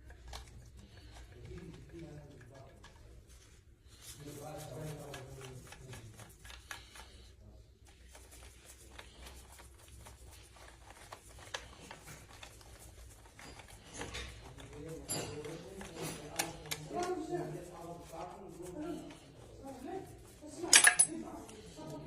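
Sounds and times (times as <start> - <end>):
small objects clicking and tapping: 20.6 - 21.2.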